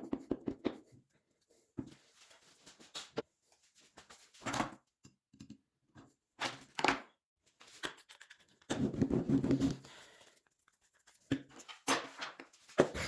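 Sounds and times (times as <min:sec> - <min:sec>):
objects knocking and clattering: 0:08.7 - 0:09.9.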